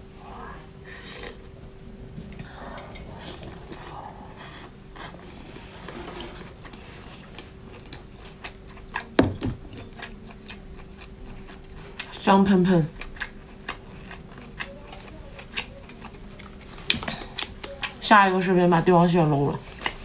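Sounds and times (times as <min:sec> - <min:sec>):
wet chewing sounds: 0:06.6 - 0:12.2, 0:12.9 - 0:18.0.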